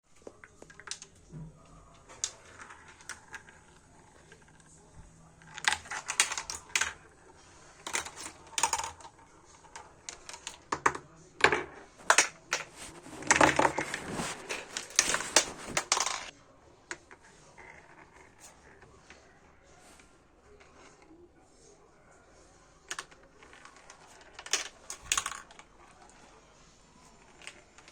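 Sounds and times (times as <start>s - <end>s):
marbles clattering through plastic run: 22.9s - 25.6s.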